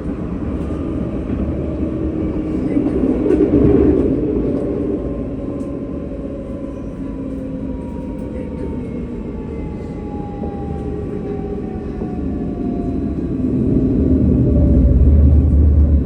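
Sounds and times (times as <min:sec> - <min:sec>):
tram rumbling and rattling on rails: 0:00.0 - 0:16.0.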